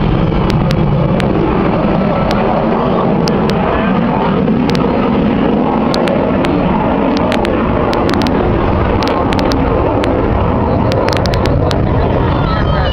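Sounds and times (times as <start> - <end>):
aircraft engine rumble: 0.0 - 12.9
sharp clicks: 3.2 - 3.6, 4.6 - 4.9, 5.8 - 12.4.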